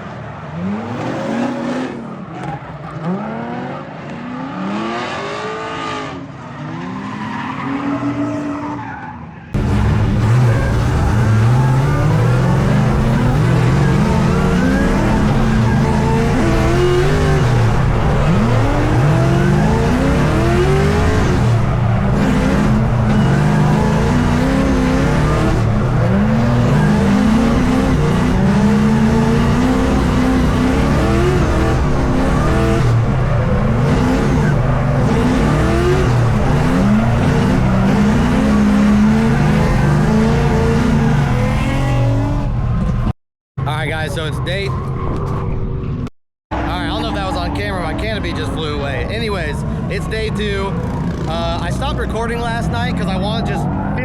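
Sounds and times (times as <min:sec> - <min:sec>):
car engine revving: 0:00.0 - 0:43.1, 0:45.9 - 0:54.0
tyre squeal: 0:10.2 - 0:31.6.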